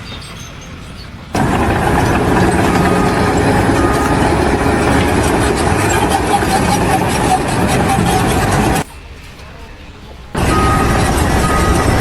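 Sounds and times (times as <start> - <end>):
heavy engine running: 1.3 - 8.9, 10.4 - 12.0.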